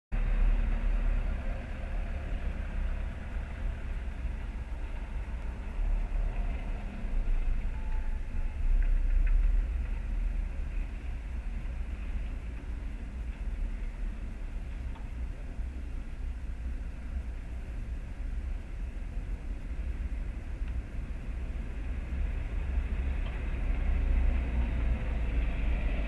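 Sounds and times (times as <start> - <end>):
passing cars on street: 0.1 - 26.0.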